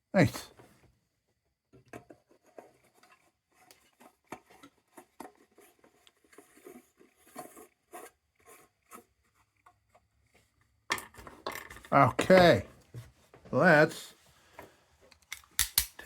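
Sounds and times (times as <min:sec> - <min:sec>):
hands handling lantern parts: 0:10.3 - 0:13.7.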